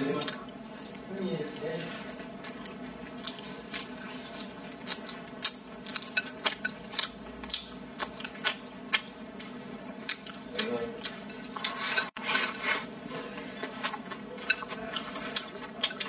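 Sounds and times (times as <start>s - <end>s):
wet chewing mouth noises: 2.0s - 11.8s, 13.3s - 16.0s.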